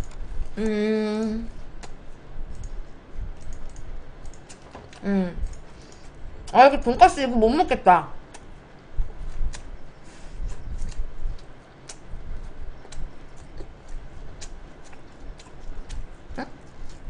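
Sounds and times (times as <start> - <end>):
person chewing food: 10.5 - 17.0.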